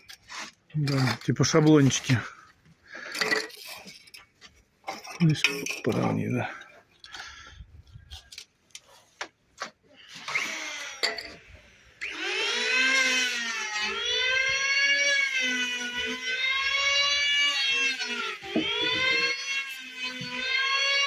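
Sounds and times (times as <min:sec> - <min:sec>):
power tool motor whine: 0:10.0 - 0:21.0.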